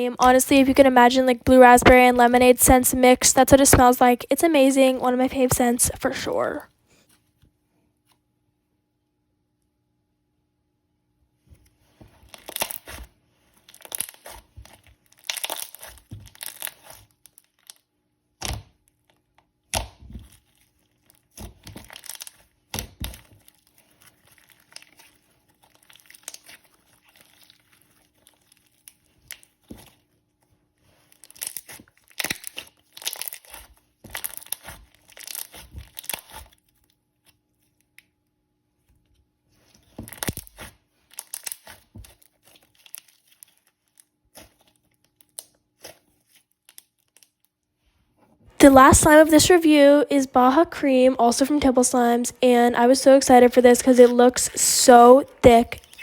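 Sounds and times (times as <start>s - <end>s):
soft crackle of slime: 11.6s - 47.9s.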